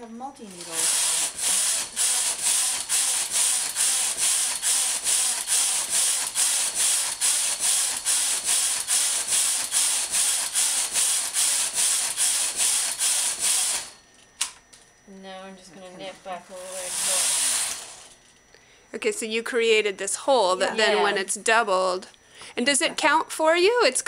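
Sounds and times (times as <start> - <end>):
knitting machine carriage clattering: 0.5 - 9.8.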